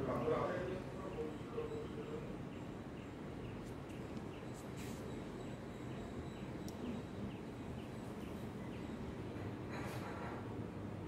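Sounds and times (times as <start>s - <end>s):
low background noise: 0.0s - 11.0s
bird chirping: 1.0s - 9.1s.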